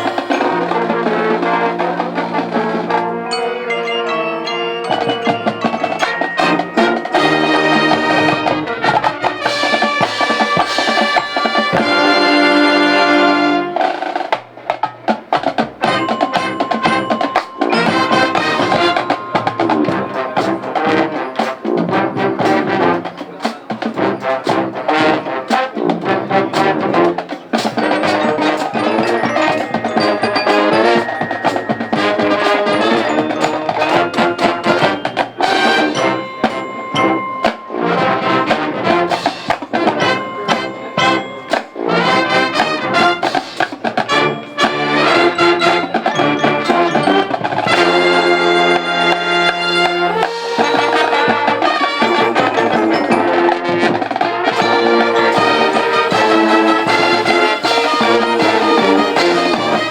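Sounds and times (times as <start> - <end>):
brass instruments playing: 0.0 - 59.9
drumline: 0.0 - 59.9.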